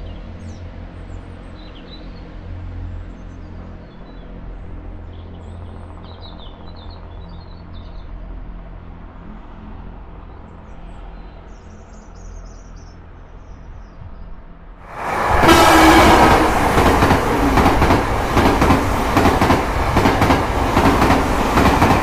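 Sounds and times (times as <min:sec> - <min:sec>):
diesel train engine drone: 0:14.9 - 0:22.0.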